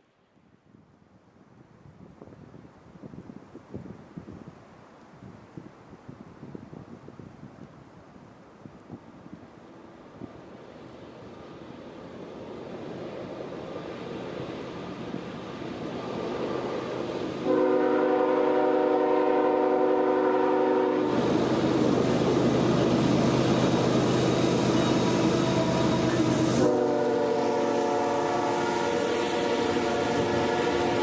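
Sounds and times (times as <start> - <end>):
passing train rumble: 9.7 - 31.0
locomotive horn blast: 17.4 - 21.2, 24.9 - 31.0.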